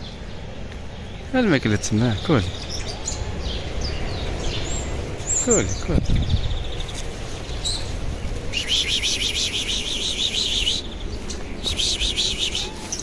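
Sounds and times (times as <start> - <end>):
small bird trilling: 8.5 - 13.0.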